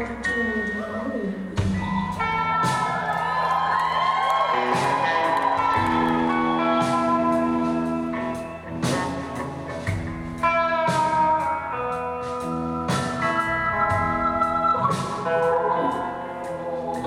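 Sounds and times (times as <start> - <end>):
live rock band playing: 0.0 - 17.0
guitar chords: 4.4 - 17.0.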